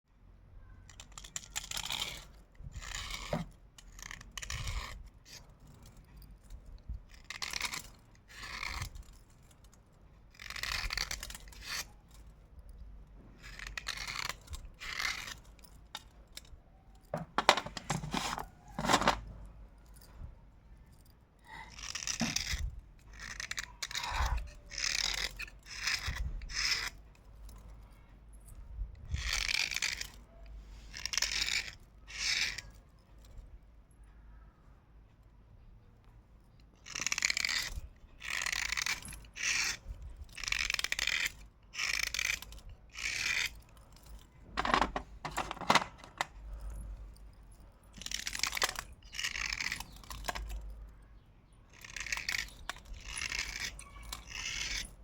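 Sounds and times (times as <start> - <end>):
slate pencils crunching: 17.1 - 19.4, 21.5 - 26.0, 40.4 - 46.8, 47.9 - 50.7, 51.8 - 55.0.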